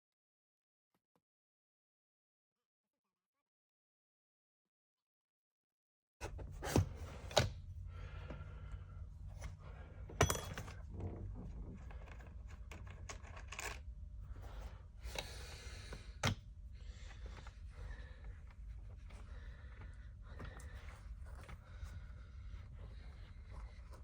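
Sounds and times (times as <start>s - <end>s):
rustling and scraping: 9.2s - 14.9s
tools clicking and knocking: 10.1s - 10.9s.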